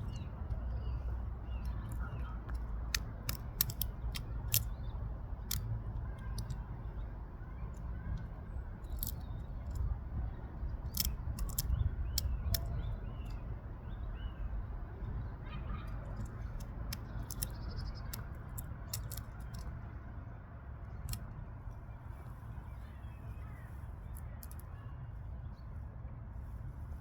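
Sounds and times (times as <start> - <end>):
woodpecker pecking: 0.0 - 13.5, 16.0 - 19.7.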